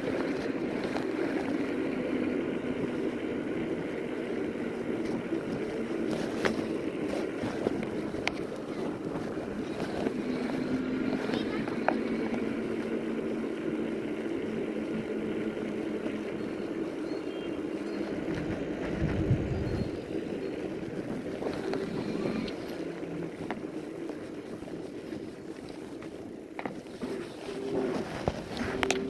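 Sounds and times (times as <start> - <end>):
electric motor hum: 0.0 - 29.0
tyres on road: 0.0 - 29.0
wind on microphone: 0.0 - 29.0.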